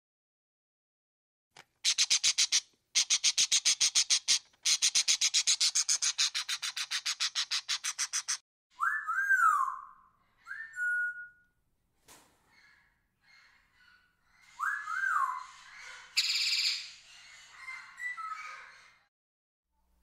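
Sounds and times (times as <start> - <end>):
parrot chattering: 1.8 - 8.4
parrot whistles: 8.8 - 11.4, 14.5 - 17.0.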